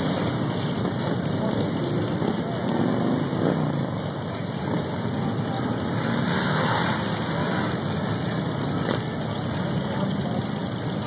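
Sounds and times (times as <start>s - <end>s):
motorcycle engines running: 0.0s - 11.0s
faint voices: 0.1s - 11.0s.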